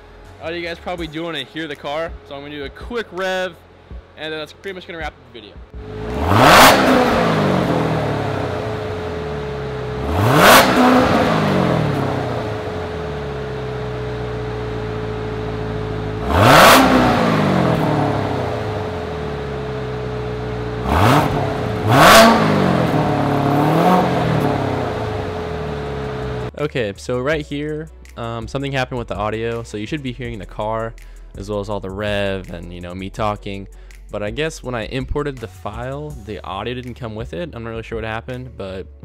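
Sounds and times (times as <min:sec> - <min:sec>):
car engine idling and revving: 0:00.0 - 0:26.6.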